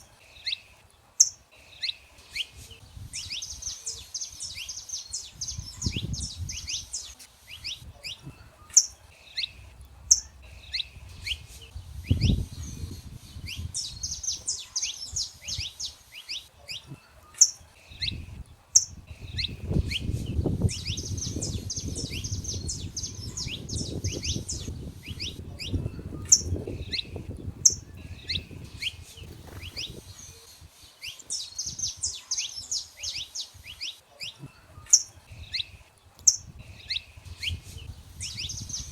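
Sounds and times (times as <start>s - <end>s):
finches chirping: 0.0s - 38.9s
low rumbling noise: 9.4s - 14.3s.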